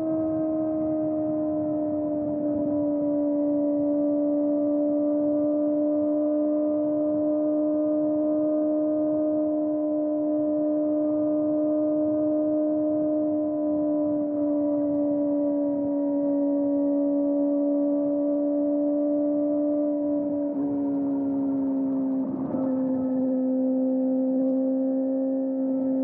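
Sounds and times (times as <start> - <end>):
wind and road rumble: 0.0 - 7.4, 12.7 - 26.0
motorcycle engine at high revs: 0.0 - 26.0.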